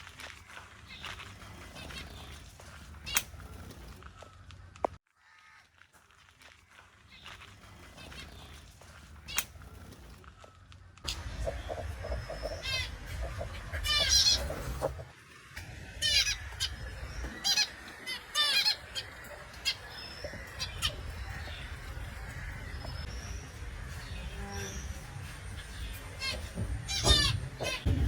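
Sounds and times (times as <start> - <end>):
finches honking chirps: 11.1 - 15.0, 16.0 - 28.0
steady low rumble: 11.1 - 17.5.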